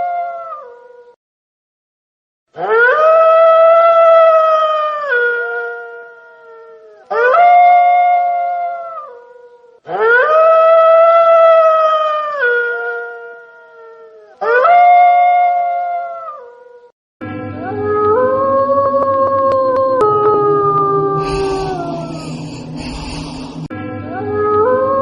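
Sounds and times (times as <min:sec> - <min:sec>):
wolf howling: 0:02.6 - 0:16.5, 0:17.7 - 0:23.7.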